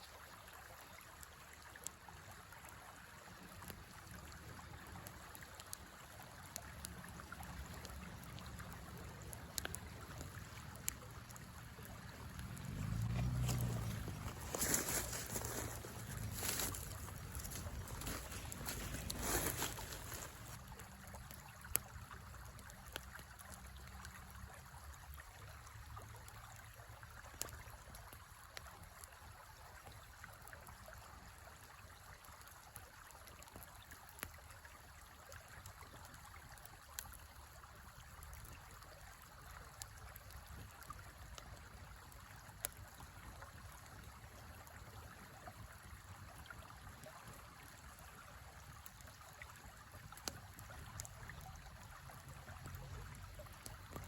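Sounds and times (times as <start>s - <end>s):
river flowing: 0.0s - 54.0s
campfire popping: 3.4s - 24.2s, 32.1s - 54.0s.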